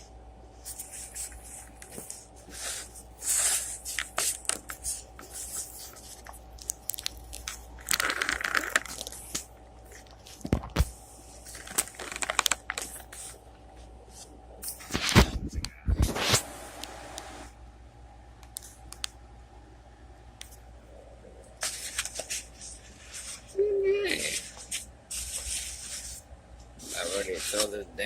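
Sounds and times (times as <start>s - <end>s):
salad greens and packaging crinkling: 0.8s - 13.4s.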